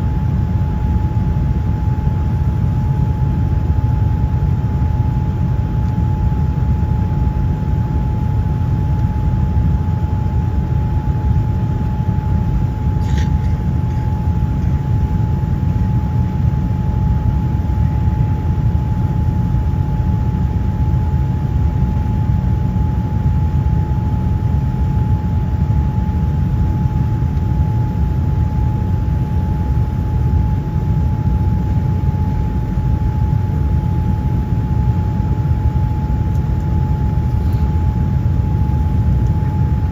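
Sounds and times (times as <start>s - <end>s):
thin whine: 12.6s - 16.3s.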